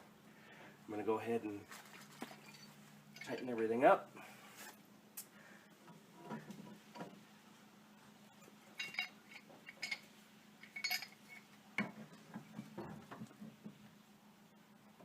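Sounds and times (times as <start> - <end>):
pliers clinking on metal fittings: 2.2 - 3.6, 8.8 - 11.5.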